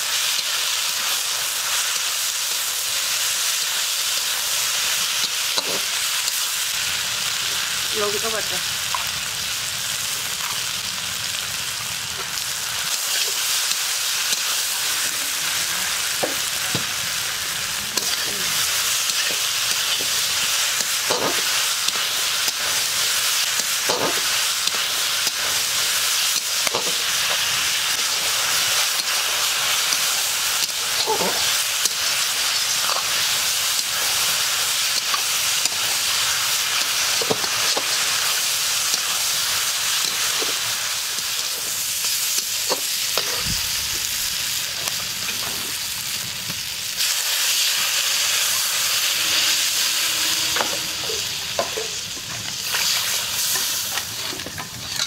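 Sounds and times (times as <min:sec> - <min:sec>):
food sizzling in hot oil: 0:00.0 - 0:55.0
metal spatula scraping pan: 0:48.3 - 0:55.0.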